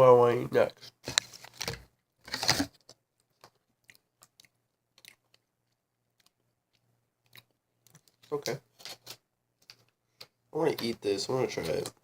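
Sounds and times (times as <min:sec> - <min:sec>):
person chewing food: 0:02.4 - 0:08.3.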